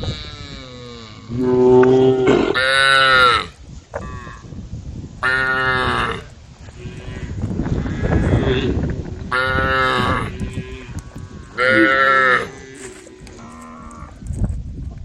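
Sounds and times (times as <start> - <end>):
low rumbling noise: 0.0 - 15.0
cows mooing: 5.2 - 14.2.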